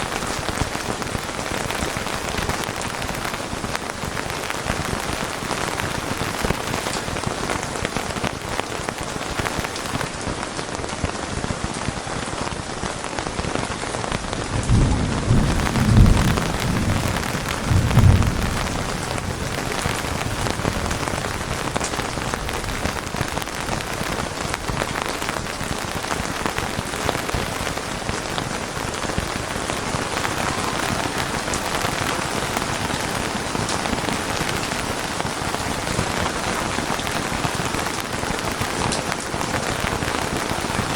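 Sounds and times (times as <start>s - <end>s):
heavy rain: 0.0s - 40.9s
thunder rumbling: 14.2s - 40.4s.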